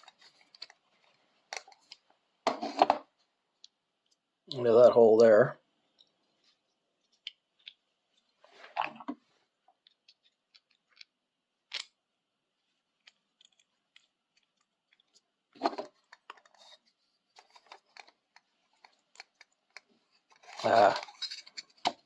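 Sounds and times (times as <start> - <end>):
small clicks and taps: 7.0 - 7.8, 17.4 - 20.5.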